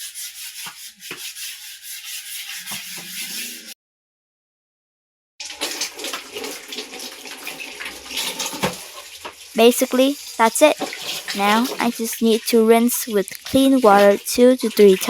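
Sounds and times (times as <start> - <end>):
rapid scrubbing strokes: 0.0 - 3.8, 11.0 - 15.0.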